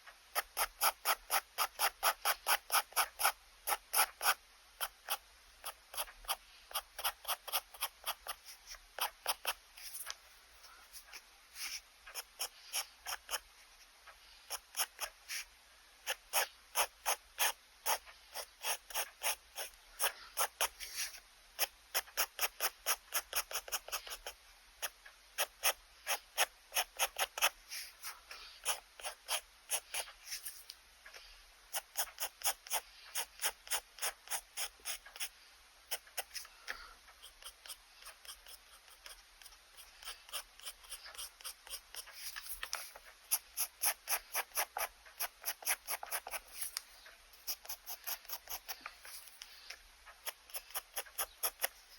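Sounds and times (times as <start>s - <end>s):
pen scratching on paper: 0.4s - 13.5s, 14.3s - 30.7s, 31.7s - 51.9s.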